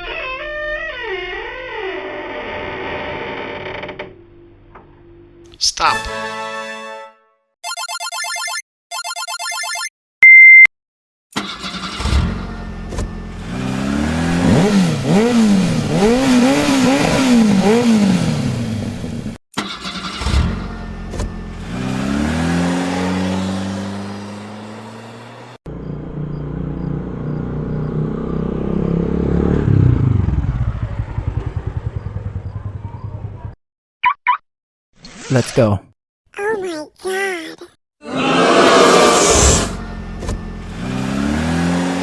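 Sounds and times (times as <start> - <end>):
short loud beep: 10.2 - 10.7
vehicle engine revving: 11.4 - 33.1, 38.3 - 42.0.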